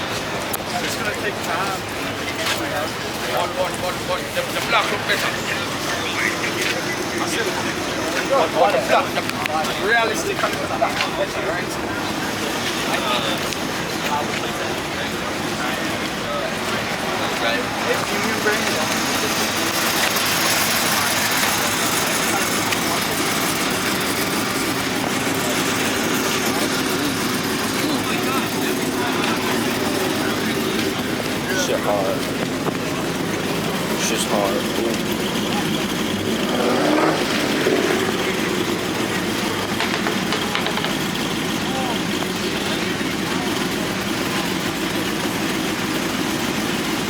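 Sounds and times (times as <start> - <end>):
car engine idling: 0.0 - 47.0
faint voices: 0.0 - 47.0.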